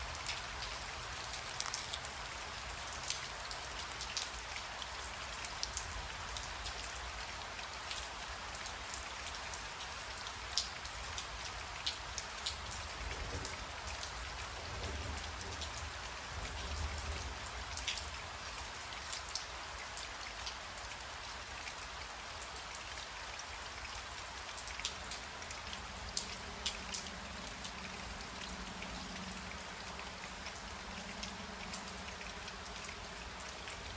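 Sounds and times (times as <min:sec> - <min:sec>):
raindrops clicking close: 0:00.0 - 0:33.9
steady rain: 0:00.0 - 0:33.9.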